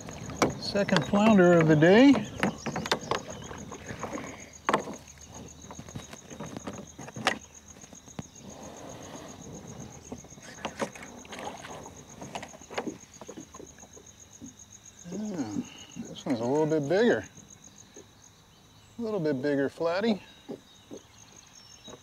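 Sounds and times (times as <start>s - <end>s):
water lapping against kayak hull: 0.0s - 14.8s.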